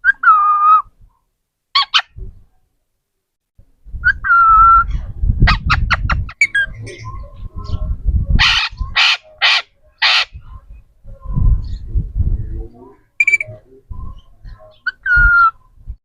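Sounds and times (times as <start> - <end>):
parrot squawks: 1.8 - 2.1, 8.4 - 10.4, 13.2 - 13.5
low rumble: 10.4 - 12.9
parrot whistling: 13.2 - 13.5.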